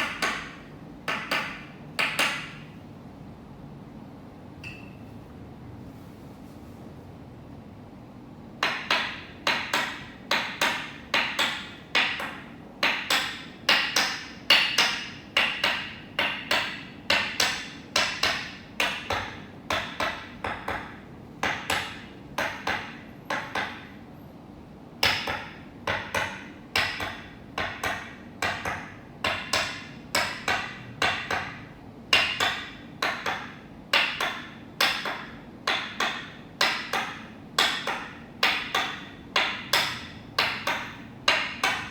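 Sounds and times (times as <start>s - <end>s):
wooden mallet tapping peg: 25.0s - 41.9s.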